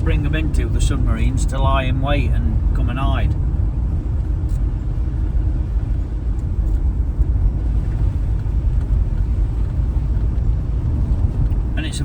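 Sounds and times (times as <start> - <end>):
tyres on the road: 0.0 - 12.0
van engine rumbling: 0.0 - 12.0.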